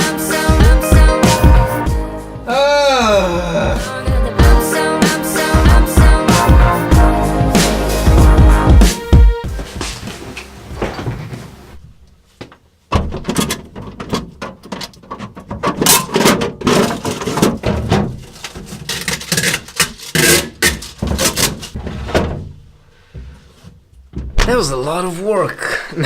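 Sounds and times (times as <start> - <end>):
music track: 0.0 - 10.8
refrigerator knocks and scrapes: 9.5 - 11.6, 20.7 - 22.6.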